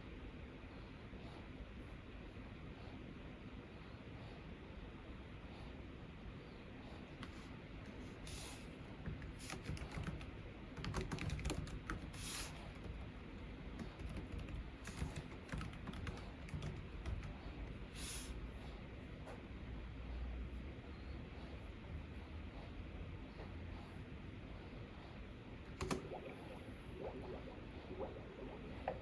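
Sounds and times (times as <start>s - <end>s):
keyboard key clicks: 25.7s - 26.2s.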